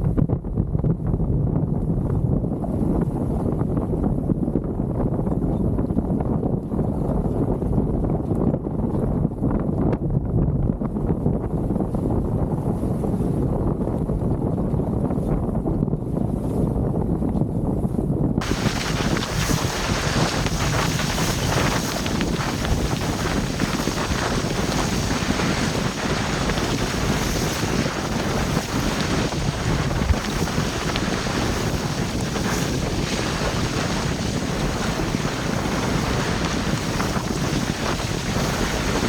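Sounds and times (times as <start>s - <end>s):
wind on microphone: 0.0s - 39.0s
waves rushing: 18.4s - 39.0s.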